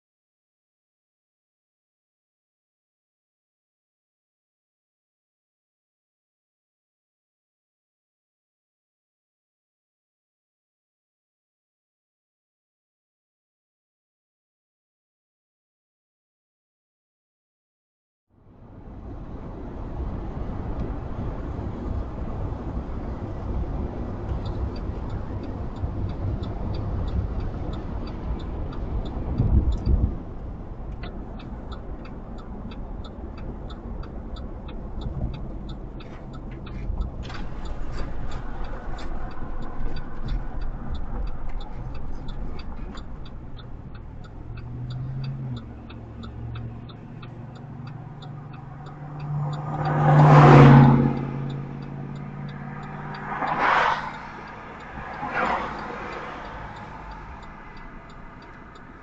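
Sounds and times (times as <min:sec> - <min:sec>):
freight cars rumbling: 0:18.4 - 0:59.0.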